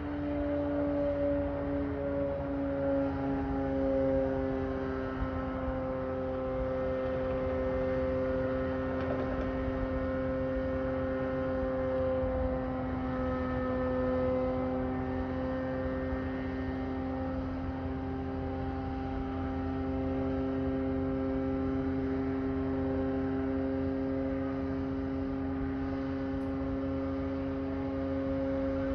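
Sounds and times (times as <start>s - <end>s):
droning hum: 0.0s - 28.9s.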